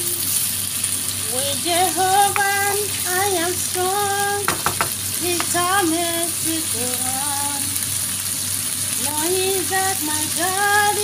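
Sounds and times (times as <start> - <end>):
food sizzling in a frying pan: 0.0 - 11.0
utensil knocking against pan: 4.5 - 5.6.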